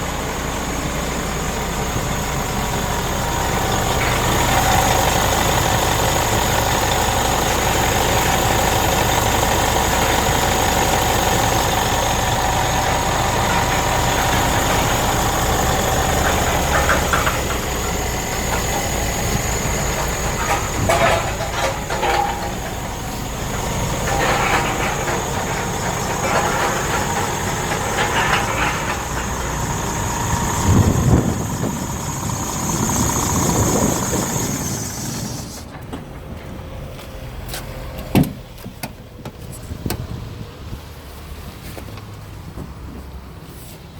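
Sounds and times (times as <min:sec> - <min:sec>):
diesel engine idling: 0:00.0 - 0:43.4
knocks and clicks: 0:09.4 - 0:30.6.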